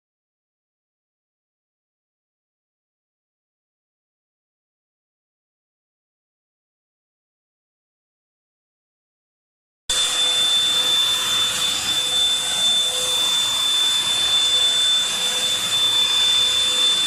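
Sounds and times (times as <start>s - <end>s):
vacuum cleaner motor whining: 9.9s - 17.0s.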